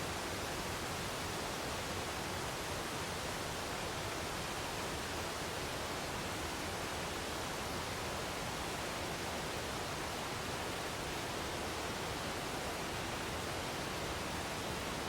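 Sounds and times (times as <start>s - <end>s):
waterfall: 0.0s - 15.0s.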